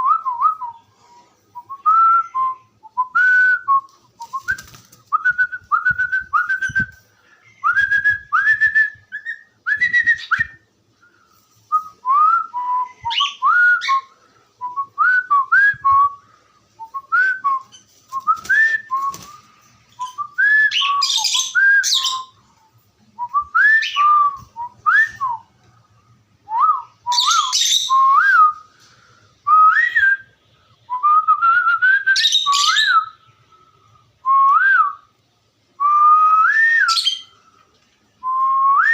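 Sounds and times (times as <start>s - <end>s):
cockatiel whistling and chirping: 27.1s - 28.0s, 32.2s - 33.1s.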